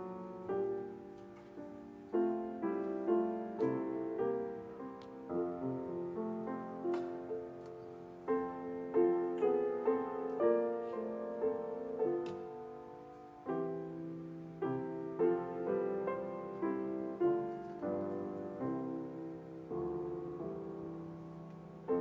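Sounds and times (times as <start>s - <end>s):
slow gentle piano piece: 0.0s - 22.0s.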